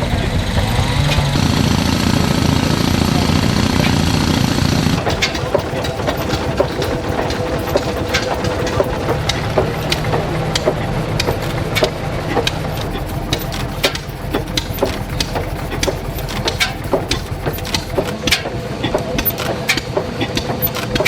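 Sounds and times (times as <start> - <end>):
single-cylinder engine running: 0.0 - 20.1
sharp mechanical clacks: 0.7 - 21.0.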